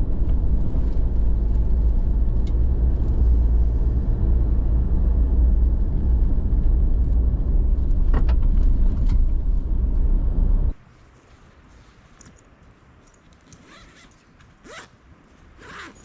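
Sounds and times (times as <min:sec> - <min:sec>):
engine and road rumble: 0:00.0 - 0:16.0.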